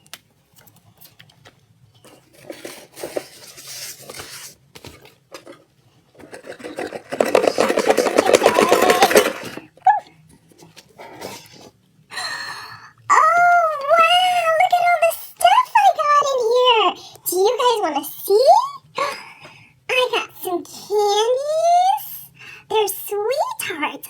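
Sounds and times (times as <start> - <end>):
box rustling and knocking: 2.0 - 9.7.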